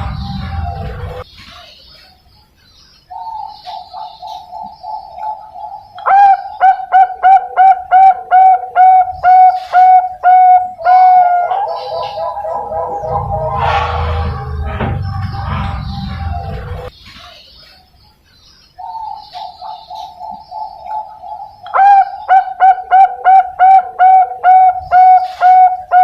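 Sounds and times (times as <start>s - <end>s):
background music: 0.0s - 1.2s, 11.3s - 16.9s
dove cooing: 3.7s - 13.7s, 19.4s - 26.0s.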